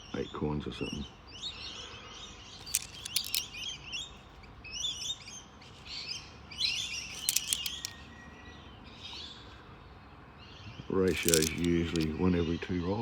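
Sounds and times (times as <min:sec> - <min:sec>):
sharp clicks: 0:02.6 - 0:03.4, 0:07.1 - 0:08.0, 0:11.1 - 0:12.1.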